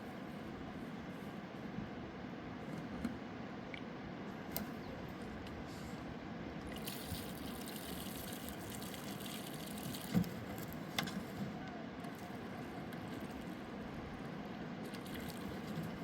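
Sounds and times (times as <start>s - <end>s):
water trickling and splashing: 6.7s - 11.0s, 12.1s - 16.0s.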